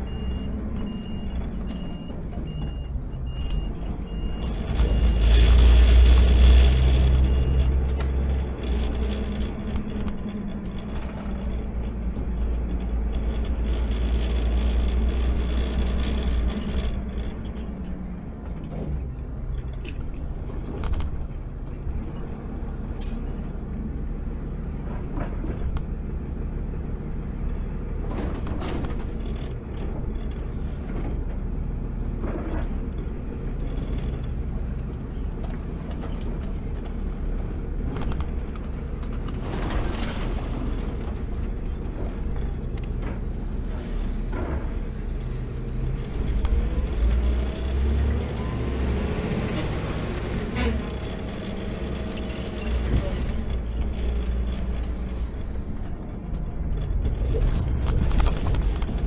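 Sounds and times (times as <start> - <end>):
truck engine running: 0.0 - 59.0
clicks and rattles: 56.3 - 59.0.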